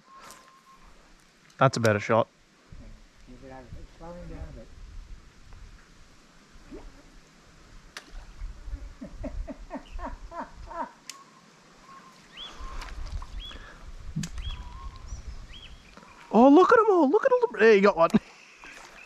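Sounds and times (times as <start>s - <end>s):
bird calls: 9.7s - 16.6s, 18.2s - 19.0s
sharp clicks: 14.2s - 14.9s.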